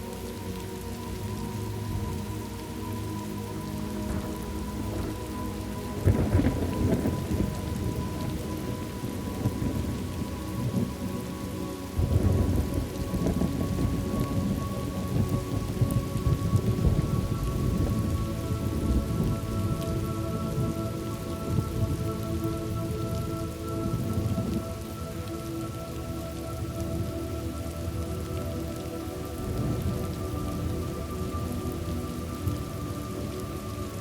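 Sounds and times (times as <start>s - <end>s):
steady rain: 0.0s - 34.0s
rolling thunder: 4.0s - 11.2s, 12.0s - 20.8s.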